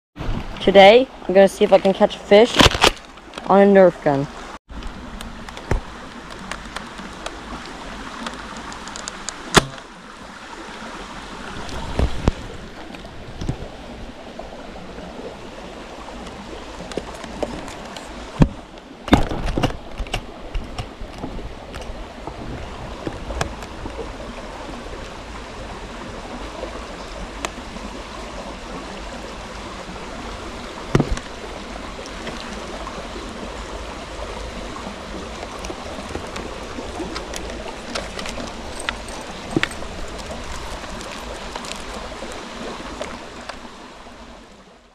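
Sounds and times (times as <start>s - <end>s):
water running: 29.3s - 43.7s.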